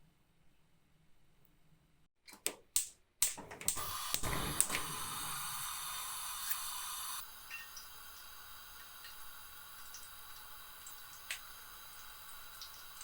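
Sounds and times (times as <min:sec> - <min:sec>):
oil sizzling: 0:03.8 - 0:13.0.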